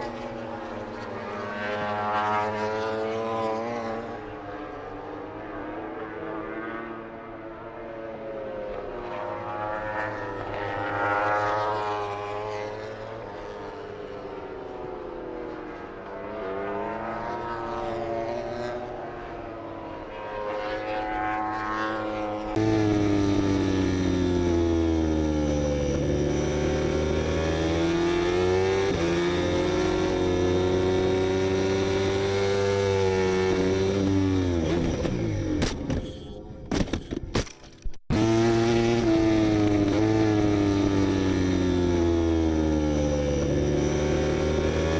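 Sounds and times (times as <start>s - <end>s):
racing motorcycle engines revving: 15.8s - 36.3s, 38.1s - 44.9s.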